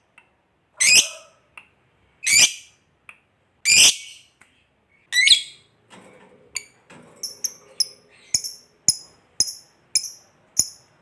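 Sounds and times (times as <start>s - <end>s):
high-pitched bird chirps: 5.1s - 5.7s.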